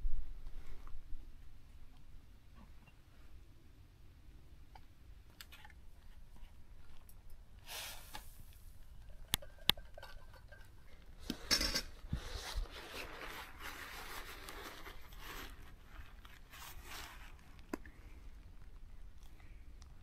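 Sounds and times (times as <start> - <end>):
rustling and scraping: 5.3 - 18.8.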